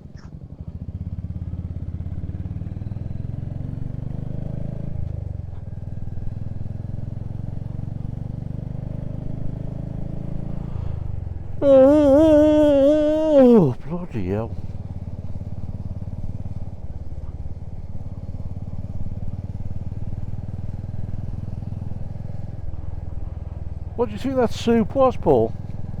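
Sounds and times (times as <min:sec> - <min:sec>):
loud voice: 0:11.6 - 0:14.5, 0:24.0 - 0:25.5.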